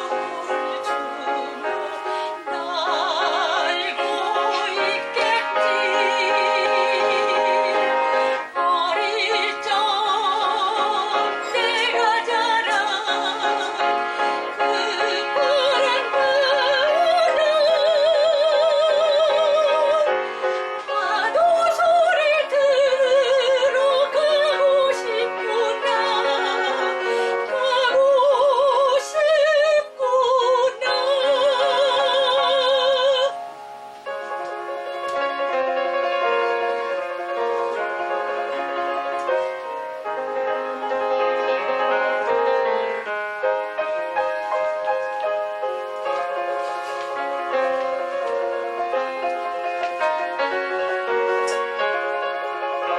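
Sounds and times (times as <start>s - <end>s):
soprano singing operatically: 0.0s - 33.6s
piano accompaniment: 0.0s - 52.9s.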